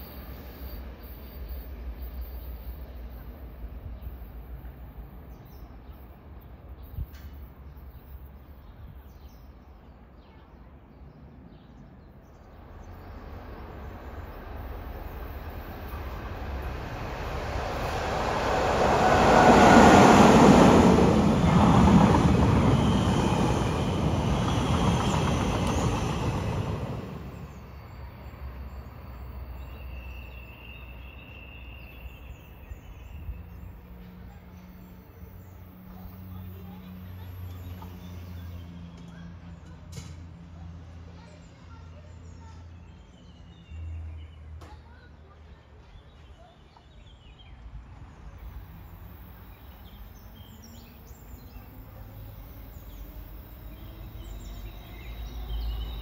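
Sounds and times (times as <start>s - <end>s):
electric train passing: 12.5s - 38.9s, 48.0s - 56.0s.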